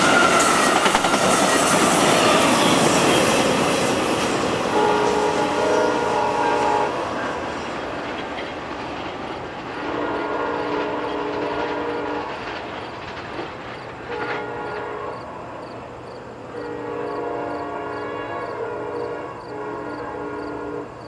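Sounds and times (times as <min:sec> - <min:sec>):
train rumbling and clacking: 0:00.0 - 0:21.0
train horn blasts: 0:04.6 - 0:07.5, 0:09.7 - 0:12.4, 0:14.0 - 0:15.5, 0:16.5 - 0:21.0.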